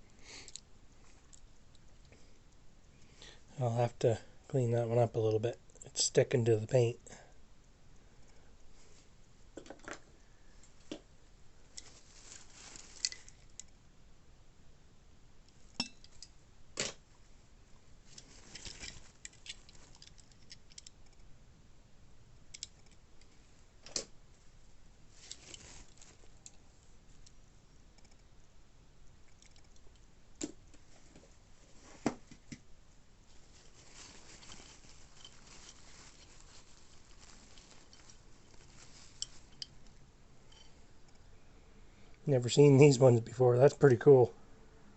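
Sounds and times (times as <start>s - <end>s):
faint hiss: 0.0s - 44.9s
hands handling model cars: 11.7s - 13.8s, 18.0s - 21.2s, 25.1s - 27.4s, 33.3s - 41.3s
plastic packaging rustling: 11.8s - 13.6s, 18.1s - 20.4s, 25.1s - 26.4s, 33.3s - 39.8s.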